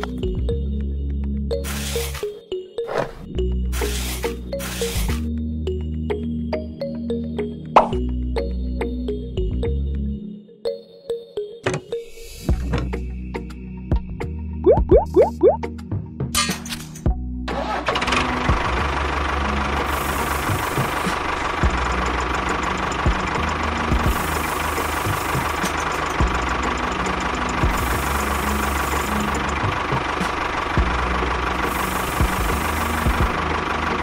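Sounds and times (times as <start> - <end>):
blade pushing sand: 3.8 - 5.2
small engine running with knocking: 17.9 - 34.0.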